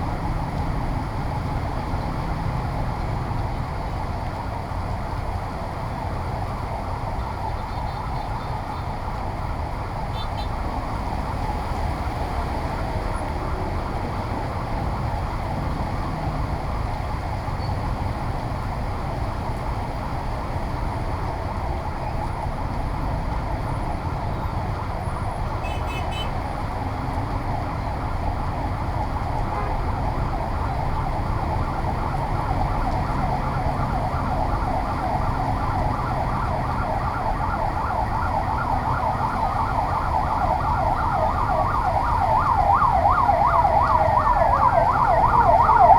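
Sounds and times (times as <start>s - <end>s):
low rumble of street noise: 0.0s - 45.9s
siren warbling yelp: 31.9s - 45.9s.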